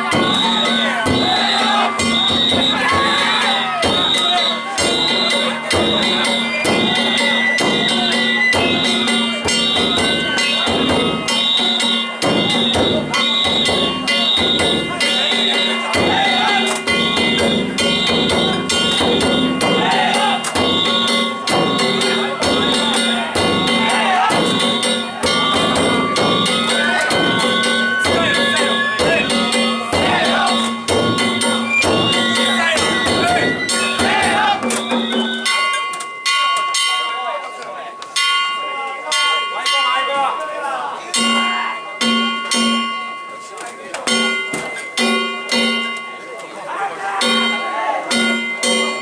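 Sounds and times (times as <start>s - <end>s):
bamboo flute melody: 0.0s - 36.1s
drums: 0.0s - 36.2s
small hand gongs: 0.0s - 39.9s, 41.2s - 46.5s.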